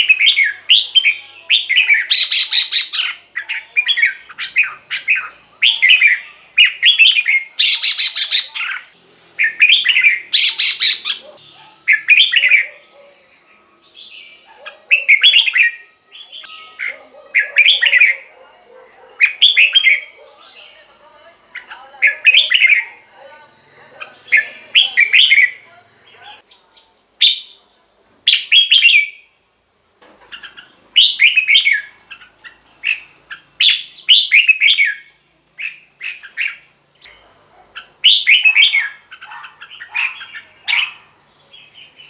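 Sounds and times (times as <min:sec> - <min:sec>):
bird singing whistled phrases: 0:00.0 - 0:12.8, 0:14.0 - 0:18.3, 0:21.6 - 0:23.0, 0:23.6 - 0:25.6, 0:28.3 - 0:29.3, 0:30.5 - 0:32.0, 0:32.8 - 0:36.7, 0:37.8 - 0:42.0.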